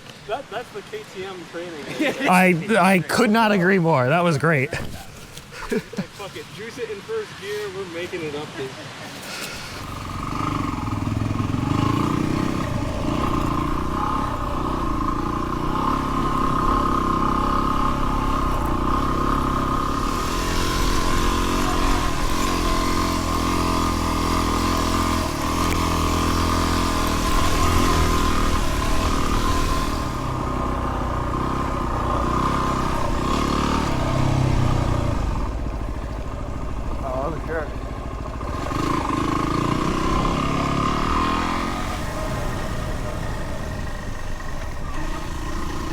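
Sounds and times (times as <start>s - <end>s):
rushing hiss: 9.0s - 10.5s
motorcycle engine running: 9.6s - 45.9s.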